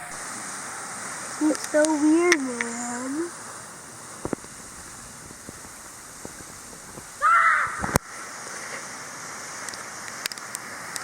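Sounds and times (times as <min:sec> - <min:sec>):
harsh bird call: 0:06.1 - 0:08.0.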